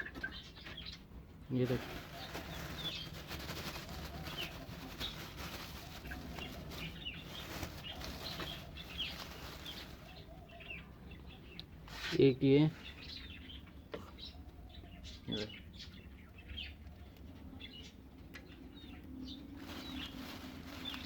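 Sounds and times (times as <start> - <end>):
birds chirping: 0.0 - 21.0
wings fluttering and rustling: 1.5 - 10.7, 18.4 - 21.0.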